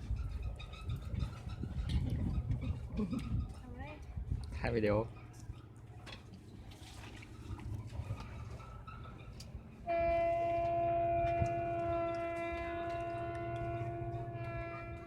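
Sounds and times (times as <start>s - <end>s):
loud horn-like tone: 9.8s - 15.0s.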